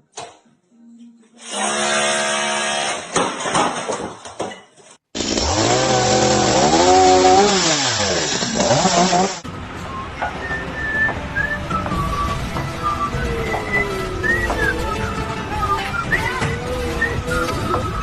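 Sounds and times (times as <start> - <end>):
motor revving: 5.2 - 9.4.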